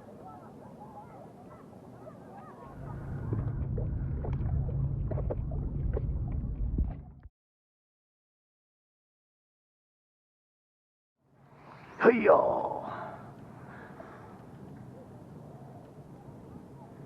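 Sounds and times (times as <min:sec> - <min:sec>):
loud low rumble: 0:02.7 - 0:07.3.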